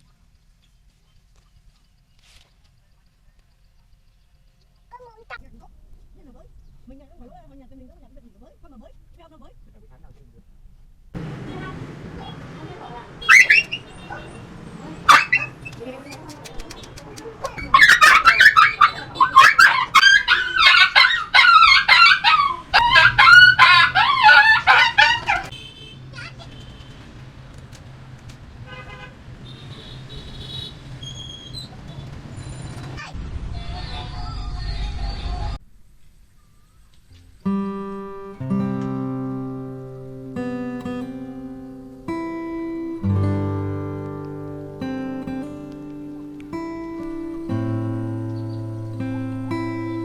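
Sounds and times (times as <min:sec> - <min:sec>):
poultry calling loudly: 0:13.2 - 0:15.9, 0:17.4 - 0:25.5
plucked acoustic guitar chords: 0:37.2 - 0:50.0.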